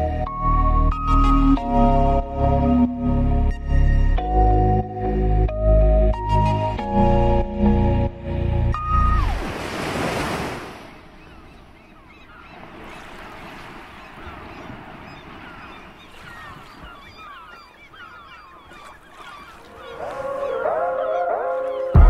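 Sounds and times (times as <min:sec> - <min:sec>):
background music: 0:00.0 - 0:09.4, 0:19.9 - 0:22.0
waves washing: 0:08.9 - 0:21.9
surf washing in: 0:09.2 - 0:11.3, 0:12.0 - 0:17.2
birds chirping: 0:10.7 - 0:22.0.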